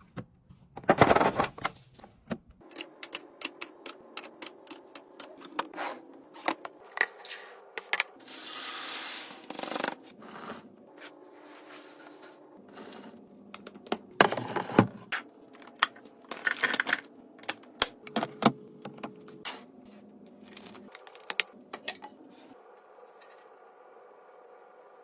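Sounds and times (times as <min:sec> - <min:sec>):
plastic packaging clicking and rustling: 0:15.6 - 0:17.8.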